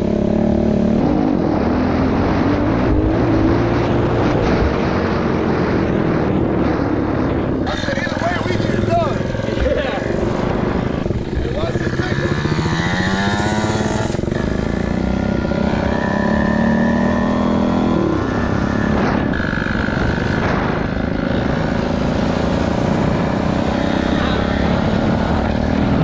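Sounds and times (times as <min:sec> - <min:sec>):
small motorbike engine revving: 0:11.0 - 0:20.7.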